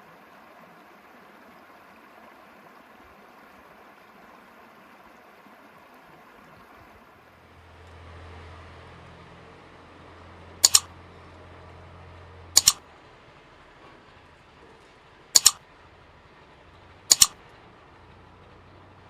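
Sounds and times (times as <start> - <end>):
sharp double clicks: 10.6 - 10.9, 12.6 - 12.8, 15.4 - 15.6, 17.1 - 17.4.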